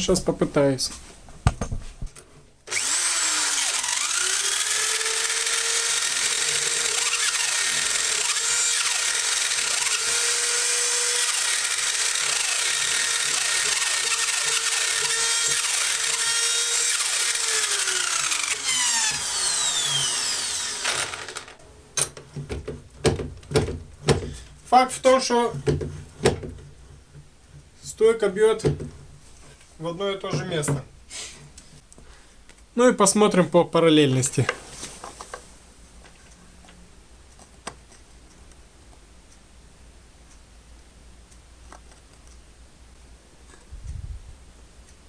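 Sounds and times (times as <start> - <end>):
electric drill spinning: 2.7 - 21.6.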